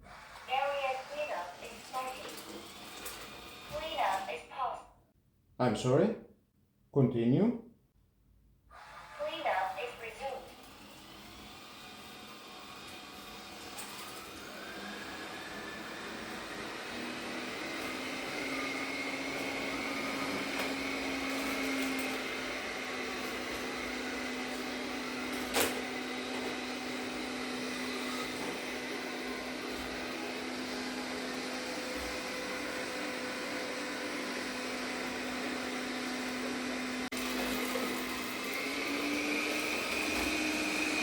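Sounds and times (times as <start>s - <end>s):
robot vacuum cleaner running: 0.0s - 4.6s, 8.7s - 41.0s.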